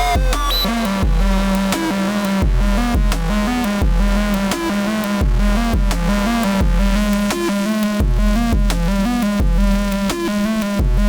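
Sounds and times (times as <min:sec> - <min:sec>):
kick drums: 0:00.0 - 0:07.4, 0:08.0 - 0:10.1, 0:10.8 - 0:11.0
synth melody: 0:00.0 - 0:07.9
hi-hat ticks: 0:00.0 - 0:11.0
synth bass line: 0:00.0 - 0:11.0.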